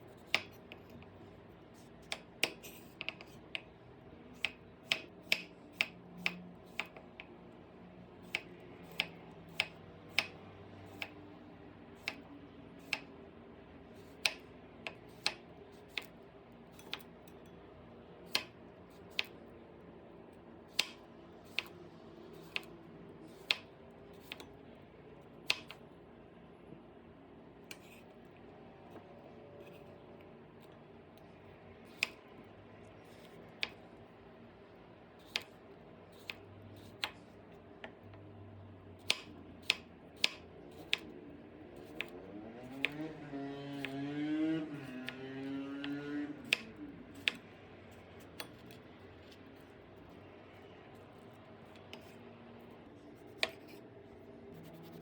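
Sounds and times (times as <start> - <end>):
faint low hum: 5.8 - 55.0.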